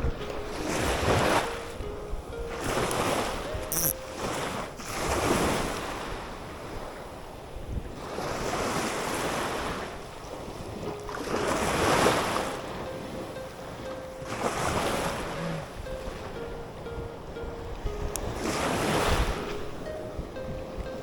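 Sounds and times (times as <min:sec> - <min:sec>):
wind on the microphone: 0:02.1 - 0:12.8.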